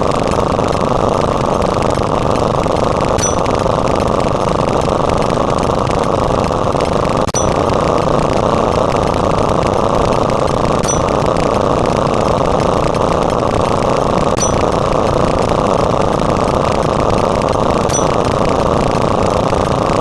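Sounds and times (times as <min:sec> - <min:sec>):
loud steady rumbling: 0:00.0 - 0:20.0
short high ding: 0:03.2 - 0:03.6, 0:07.4 - 0:07.6, 0:10.8 - 0:11.2, 0:14.4 - 0:14.8, 0:17.9 - 0:18.3.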